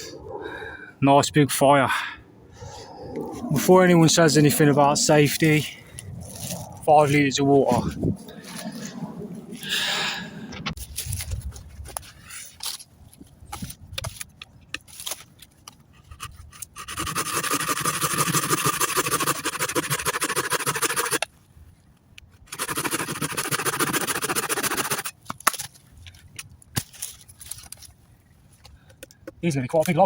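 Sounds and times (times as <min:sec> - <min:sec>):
hand saw cutting log: 0:16.0 - 0:21.3, 0:22.5 - 0:25.2.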